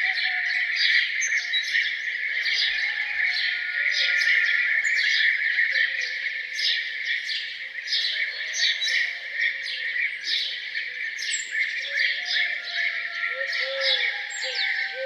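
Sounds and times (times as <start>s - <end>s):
songbirds chirping in chorus: 0.0s - 15.0s.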